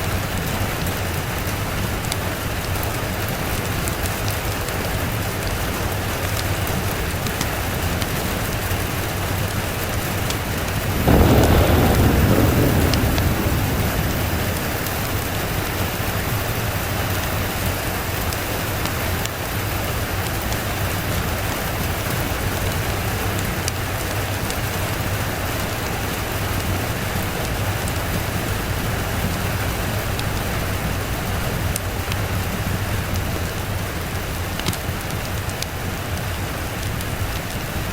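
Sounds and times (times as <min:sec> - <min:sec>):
rain falling: 0:00.0 - 0:37.9
low thunder rumble: 0:10.1 - 0:18.6.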